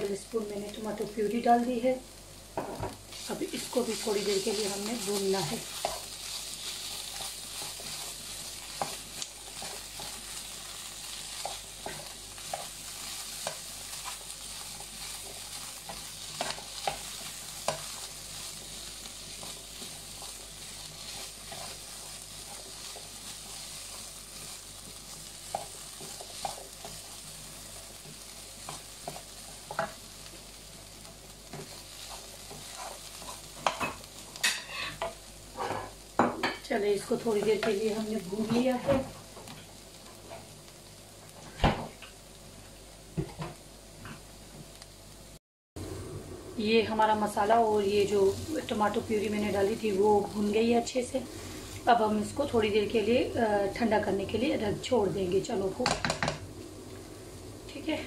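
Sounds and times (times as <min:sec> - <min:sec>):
food sizzling in pan: 0:00.0 - 0:58.0.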